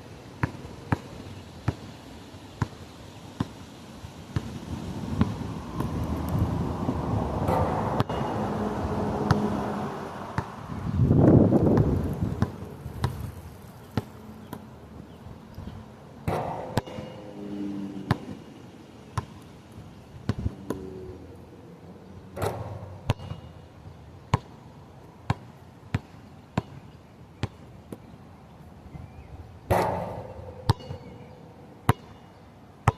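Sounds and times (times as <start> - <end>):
wind rushing: 4.6 - 13.4.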